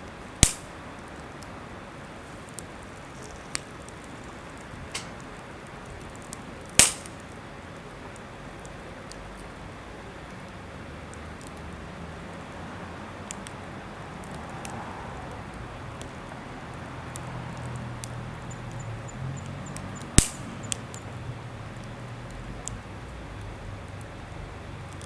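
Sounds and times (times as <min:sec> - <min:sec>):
campfire crackling: 0:00.0 - 0:25.0
sharp pop of fire: 0:00.4 - 0:01.0, 0:04.9 - 0:05.4, 0:06.7 - 0:07.4, 0:20.2 - 0:20.8.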